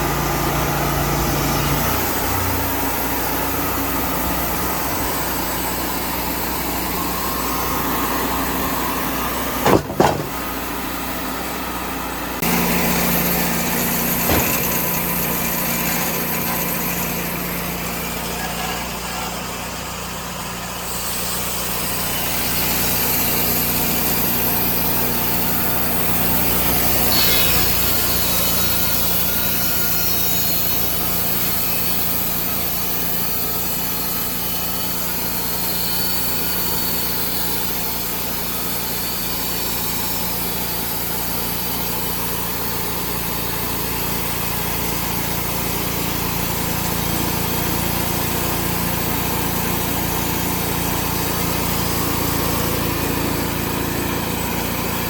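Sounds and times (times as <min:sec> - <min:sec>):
bandsaw mill cutting log: 0:00.0 - 0:55.0.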